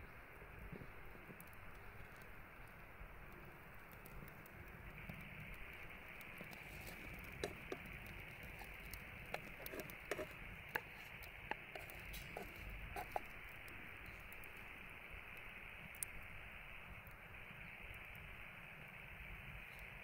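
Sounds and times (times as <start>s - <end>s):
steady low hiss: 0.0s - 20.0s
light clicks and pops: 0.7s - 16.3s.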